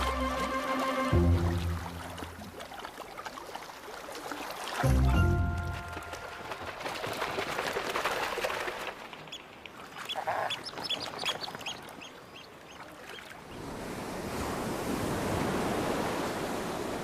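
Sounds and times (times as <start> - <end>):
water noise: 0.0 - 17.0.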